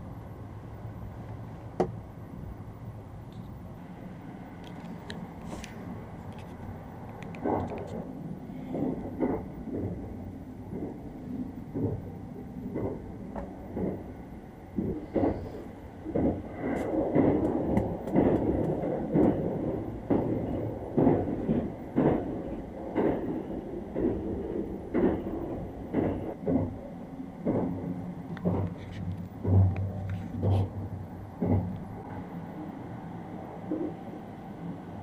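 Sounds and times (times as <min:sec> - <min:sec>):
train rumbling: 0:00.0 - 0:35.0
wheels clacking over rail joints: 0:04.6 - 0:32.6.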